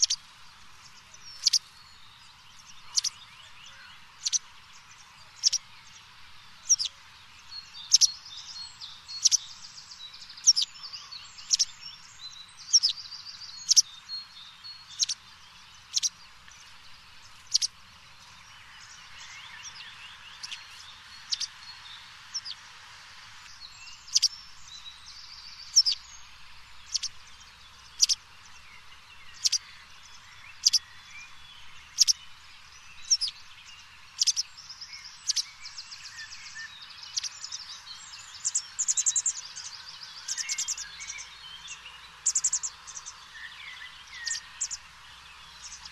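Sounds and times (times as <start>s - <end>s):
soft bird chirps and trills: 0.0s - 45.9s
bird sharp chirp: 1.2s - 1.8s, 2.5s - 4.5s, 5.3s - 5.7s, 6.6s - 6.9s, 7.6s - 15.2s, 15.8s - 16.2s, 17.3s - 21.7s, 23.5s - 28.2s, 29.2s - 32.3s, 32.9s - 33.5s, 34.2s - 44.8s.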